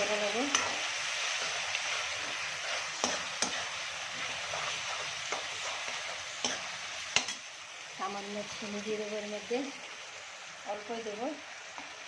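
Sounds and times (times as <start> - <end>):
spice paste sizzling in a frying pan: 0.0 - 12.0
spoon clicking against pan: 6.4 - 7.4.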